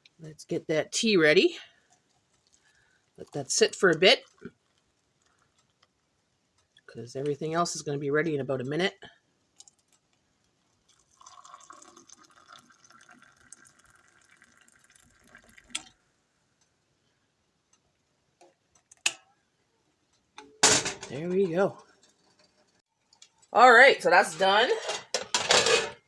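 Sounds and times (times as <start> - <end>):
hot water pouring: 10.6 - 16.0
sharp clunk: 20.6 - 21.1.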